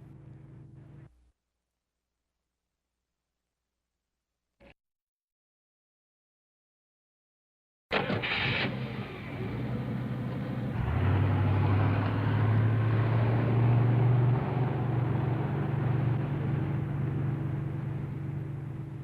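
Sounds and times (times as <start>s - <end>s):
vehicle engine running: 0.0s - 1.1s, 8.8s - 19.0s.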